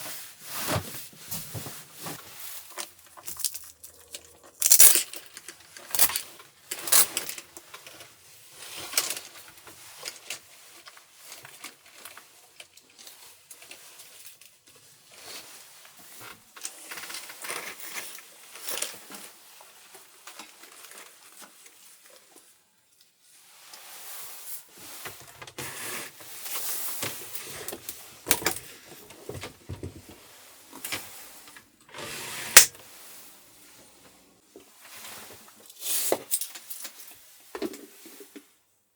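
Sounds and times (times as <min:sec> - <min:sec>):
objects clicking and knocking: 0:03.1 - 0:07.6.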